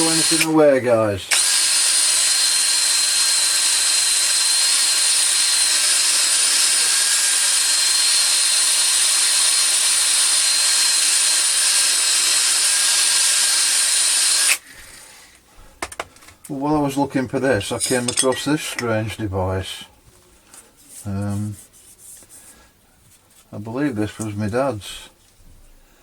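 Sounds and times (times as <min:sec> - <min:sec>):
power tool whining: 0:00.0 - 0:15.2.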